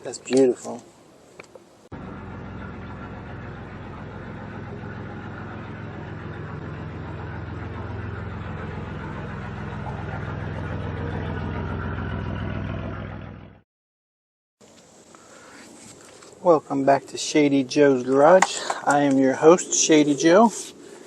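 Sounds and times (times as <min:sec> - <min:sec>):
vehicle engine running: 0:01.9 - 0:13.6.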